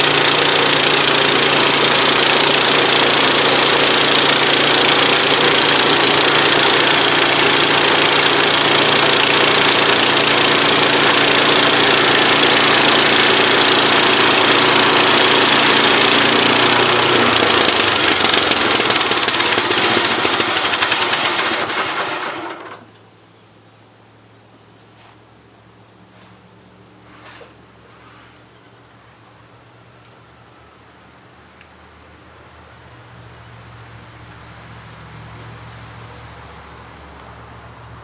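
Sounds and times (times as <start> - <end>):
petrol engine running loudly: 0.0 - 22.9.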